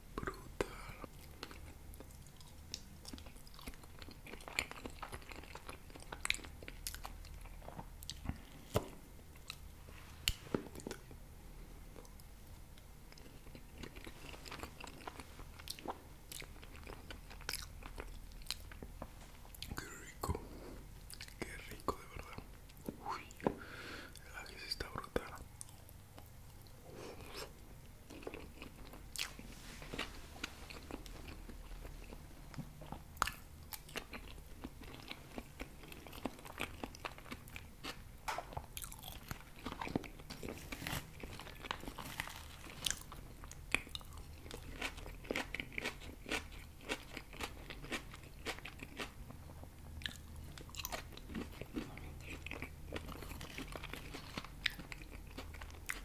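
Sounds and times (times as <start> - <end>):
person chewing food: 0.2 - 11.2, 11.8 - 56.0
crisp crunches: 39.2 - 43.2.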